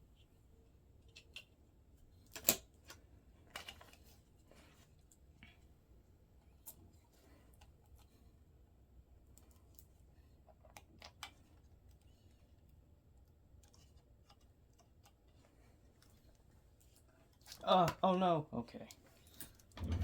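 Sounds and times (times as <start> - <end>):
clicks of small parts handled: 2.2 - 4.0
low steady hum: 3.1 - 20.0.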